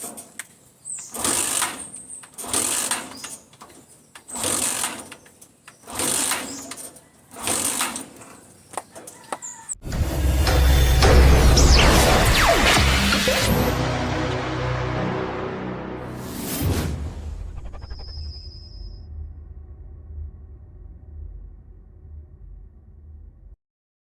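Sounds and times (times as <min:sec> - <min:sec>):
motorcycle engine kick start rattling: 0:00.0 - 0:09.2
music: 0:09.8 - 0:17.8.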